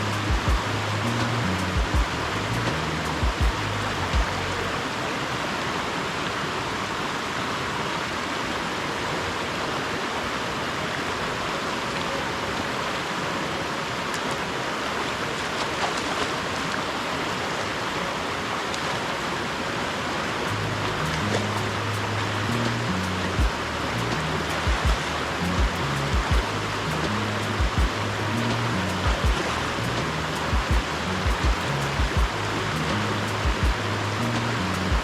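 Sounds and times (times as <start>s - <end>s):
stream water rushing: 0.0s - 35.0s.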